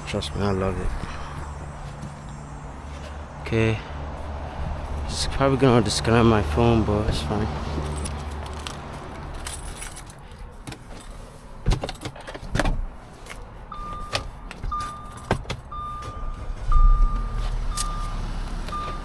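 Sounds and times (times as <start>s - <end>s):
keys jangling: 7.8s - 11.2s
car electronic chime beeping: 13.7s - 19.0s.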